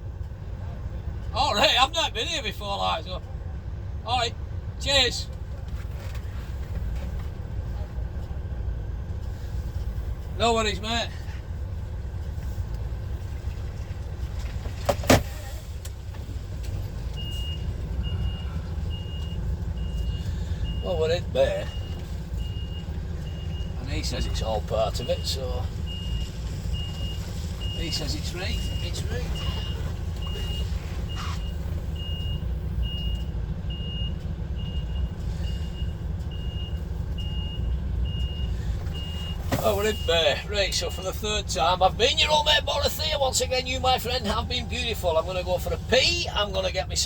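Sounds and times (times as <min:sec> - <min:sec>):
diesel engine running low: 0:00.0 - 0:47.0
reversing alarm beeping: 0:17.2 - 0:41.0.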